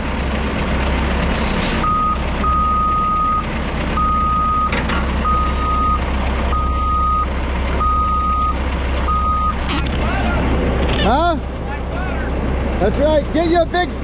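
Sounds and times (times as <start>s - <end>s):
diesel engine running: 0.0s - 14.0s
backup alarm beeping: 1.8s - 3.4s, 4.0s - 9.6s.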